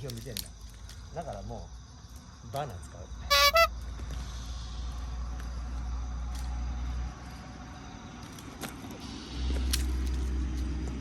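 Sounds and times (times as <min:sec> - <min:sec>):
high-pitched chirps: 0:03.3 - 0:03.7.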